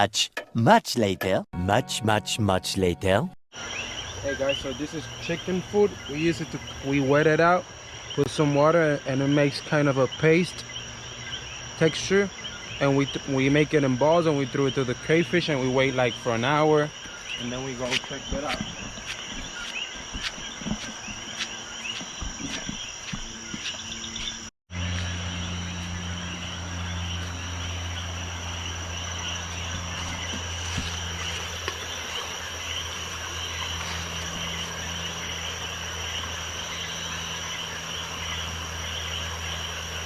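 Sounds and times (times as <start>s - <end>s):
frogs and insects calling: 3.5s - 40.0s
steady low hum: 14.8s - 40.0s.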